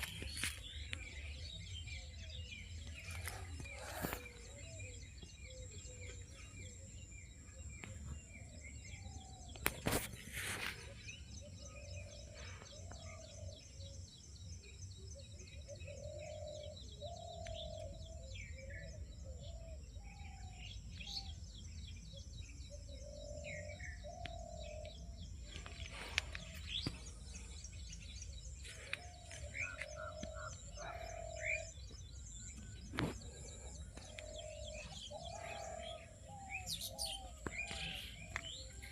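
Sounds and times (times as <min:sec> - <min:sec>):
high bird chirping: 0:22.7 - 0:38.9
short low bird calls: 0:23.4 - 0:38.9.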